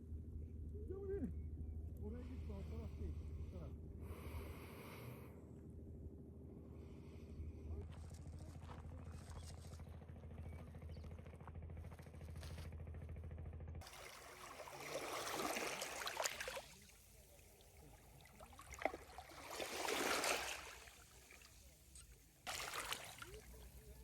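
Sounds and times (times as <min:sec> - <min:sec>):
low engine hum: 0:00.0 - 0:24.0
water sloshing: 0:13.8 - 0:24.0.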